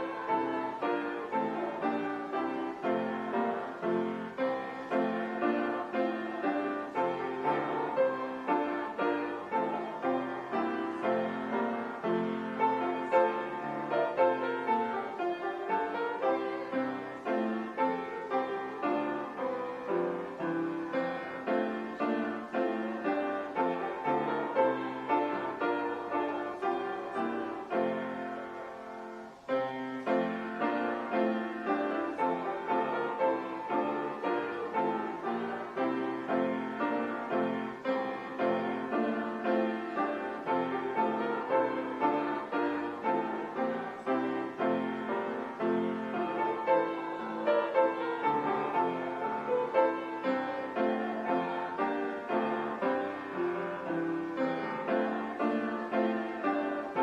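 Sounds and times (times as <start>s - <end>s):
piano playing hymn chords: 0.0s - 57.0s.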